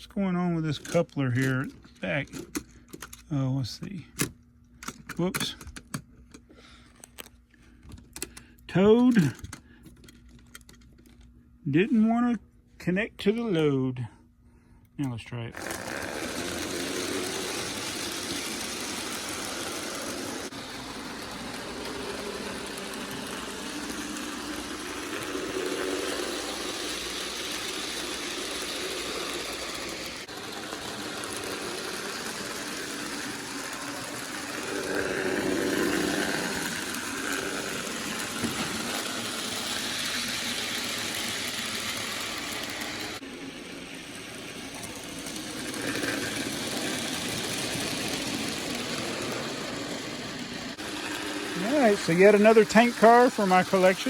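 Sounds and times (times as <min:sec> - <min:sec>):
model train whirring on track: 0:15.5 - 0:54.0.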